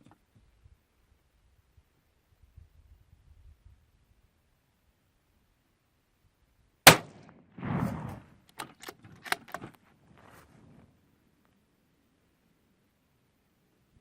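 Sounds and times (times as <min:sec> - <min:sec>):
rifle shot: 0:06.9 - 0:08.3
rifle bolt clicking and clattering: 0:08.5 - 0:09.8.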